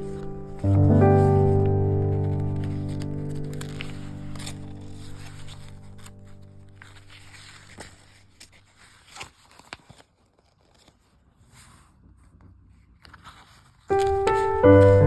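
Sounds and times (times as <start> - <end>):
piano music: 0.0 - 8.2, 13.9 - 15.0
paper rustling: 0.0 - 15.0.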